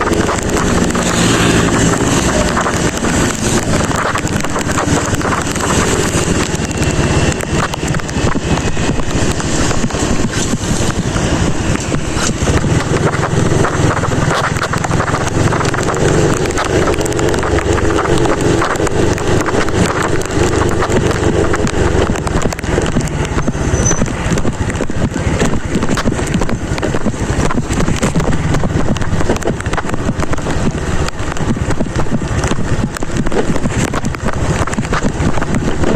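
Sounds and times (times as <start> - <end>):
motorcycle and road noise: 0.0 - 35.9
rain ticking on microphone: 0.0 - 35.9
wind rushing over microphone: 0.0 - 35.9.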